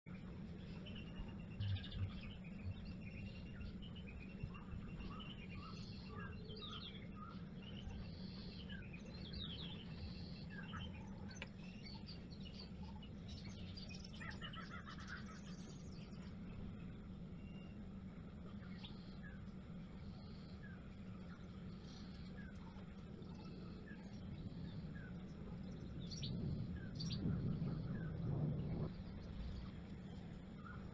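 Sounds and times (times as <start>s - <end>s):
birds chirping and calling: 0.1s - 17.8s
steady low hum: 0.1s - 30.9s.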